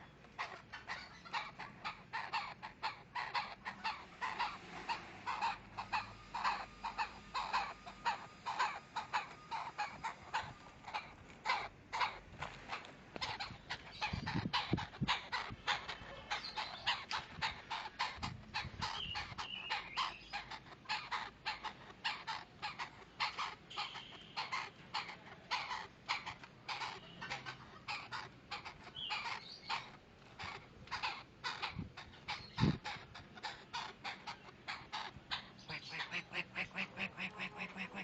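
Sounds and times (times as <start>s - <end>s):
bird calling harsh rapid notes: 0.8s - 12.2s, 13.2s - 33.1s.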